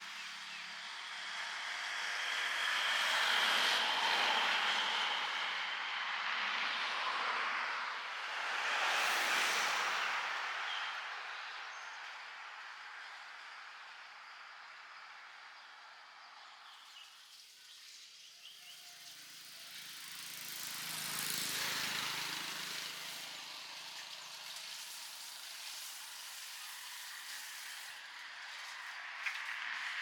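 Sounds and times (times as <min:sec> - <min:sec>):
outdoor background noise: 0:00.0 - 0:30.0
vehicle passing by: 0:01.0 - 0:11.6, 0:19.1 - 0:30.0.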